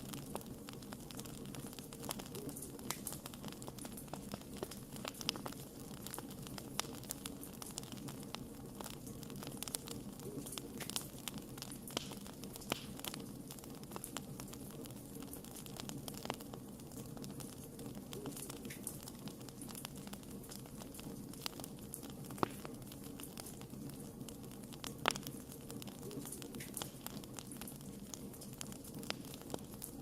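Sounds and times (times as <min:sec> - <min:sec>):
wood fire crackling: 0:00.0 - 0:30.0
loud fire pops: 0:08.8 - 0:30.0.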